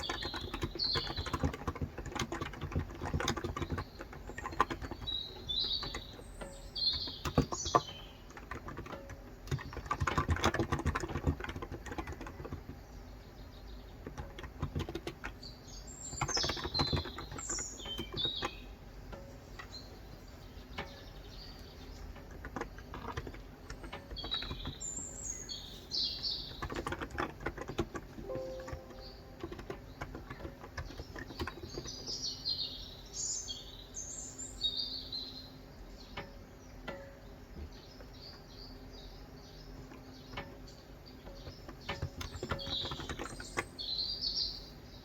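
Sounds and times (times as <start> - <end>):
keyboard typing: 0.0 - 12.9, 14.0 - 18.7, 22.0 - 32.2, 41.3 - 43.8
birds chirping: 0.0 - 45.0.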